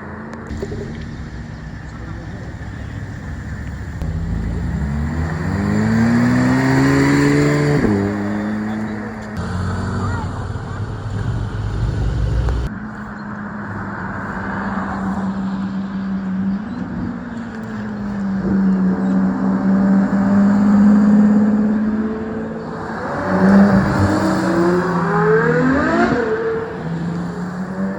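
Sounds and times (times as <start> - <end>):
car engine running and revving: 0.4 - 12.7.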